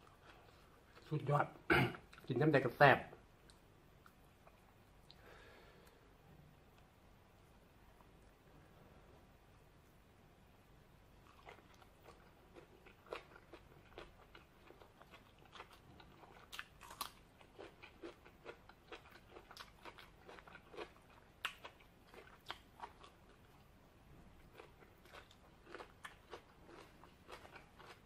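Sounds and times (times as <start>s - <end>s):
person chewing crunchy food: 11.2s - 23.7s, 24.4s - 28.0s.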